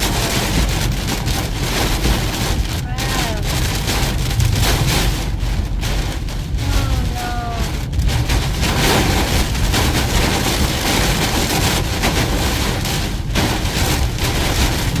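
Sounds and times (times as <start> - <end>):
low rumble: 0.0 - 15.0
rain on a car: 0.0 - 15.0
road noise: 0.0 - 15.0.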